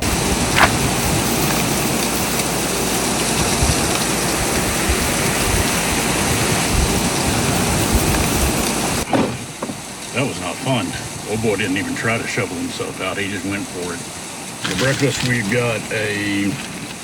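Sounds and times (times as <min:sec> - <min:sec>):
strong wind on microphone: 0:00.0 - 0:09.9.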